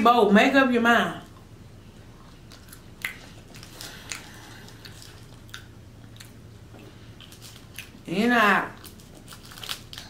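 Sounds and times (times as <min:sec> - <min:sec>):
faint low hum: 0:00.0 - 0:10.0
chewing crunchy food: 0:01.3 - 0:08.1, 0:08.7 - 0:10.0.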